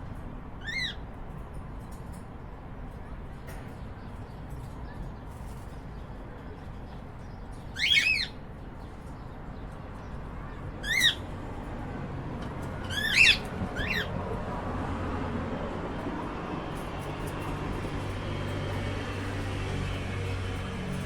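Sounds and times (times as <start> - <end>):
cockatiel chirping calls: 0.6 - 1.0, 7.7 - 8.4, 10.8 - 11.3, 12.8 - 14.1.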